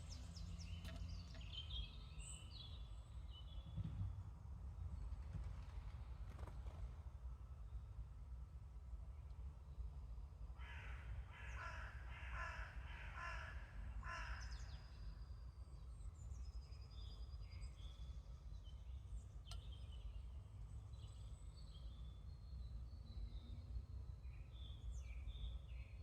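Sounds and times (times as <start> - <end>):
small birds chirping: 0.0 - 3.7
crow cawing: 10.6 - 14.6.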